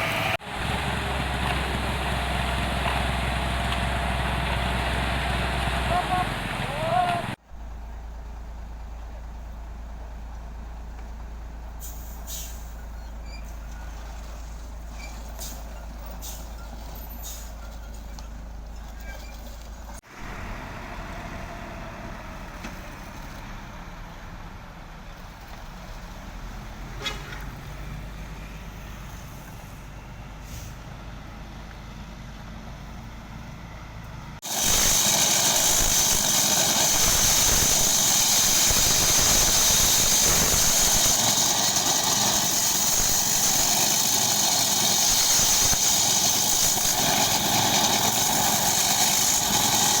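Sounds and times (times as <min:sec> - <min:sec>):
vehicle engine: 0:00.0 - 0:50.0
loud steady hiss-like noise: 0:34.4 - 0:50.0.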